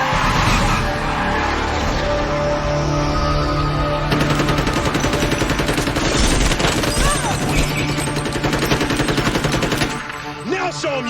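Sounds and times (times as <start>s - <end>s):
rapid automatic gunfire: 4.1s - 10.4s.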